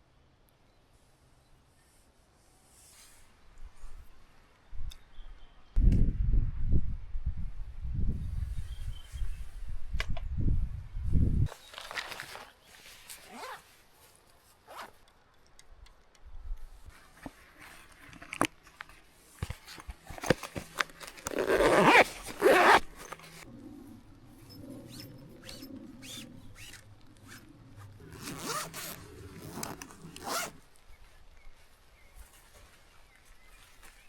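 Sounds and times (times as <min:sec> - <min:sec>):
loud rasping strokes: 0:24.8 - 0:29.6.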